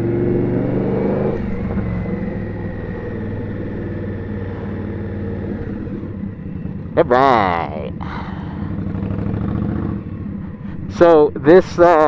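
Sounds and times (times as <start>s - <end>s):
motorcycle engine under throttle: 0.0s - 6.8s, 8.7s - 10.5s.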